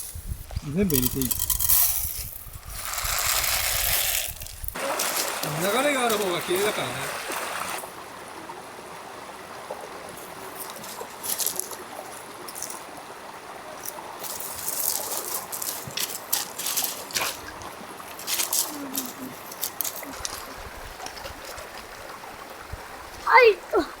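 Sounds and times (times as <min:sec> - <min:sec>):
water trickling: 0:00.5 - 0:24.0
sharp clicks and rattles: 0:00.7 - 0:02.4.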